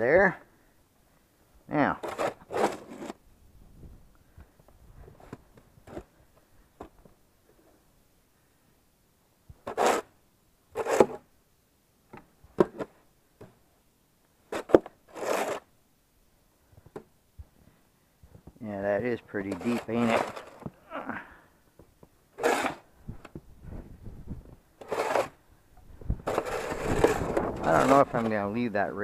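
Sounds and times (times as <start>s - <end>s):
crunching and scraping in snow: 1.8s - 3.2s, 14.5s - 15.7s, 19.3s - 20.6s, 22.4s - 22.9s, 24.8s - 25.4s, 26.2s - 28.6s.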